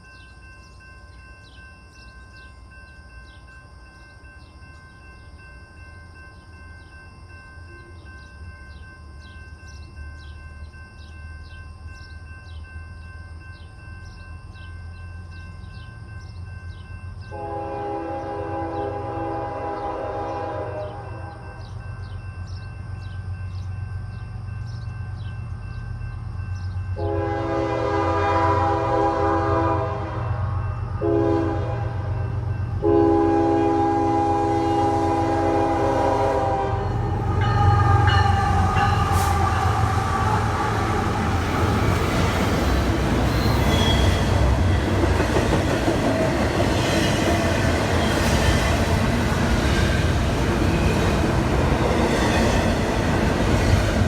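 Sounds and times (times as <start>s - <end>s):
train wheels on rail: 13.4s - 54.0s
locomotive air horn blasts: 17.3s - 21.3s, 27.0s - 41.4s.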